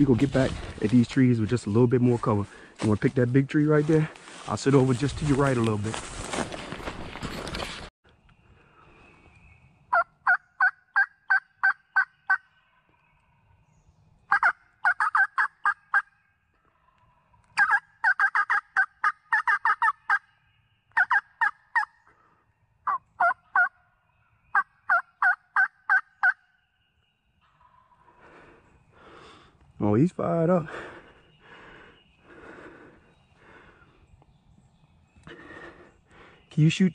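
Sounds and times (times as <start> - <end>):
turkey call yelps: 9.9 - 12.4, 14.3 - 16.1, 17.6 - 20.2, 20.9 - 22.0, 22.8 - 23.8, 24.5 - 26.4.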